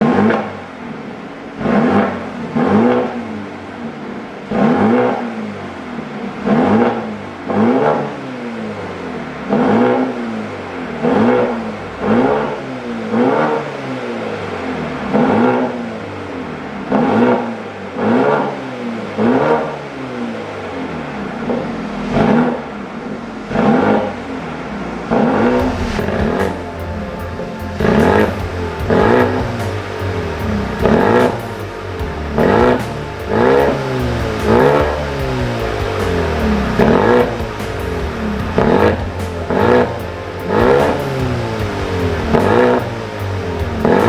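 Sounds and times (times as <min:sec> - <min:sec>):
car engine revving: 0:09.5 - 0:44.0
car engine idling: 0:23.0 - 0:44.0.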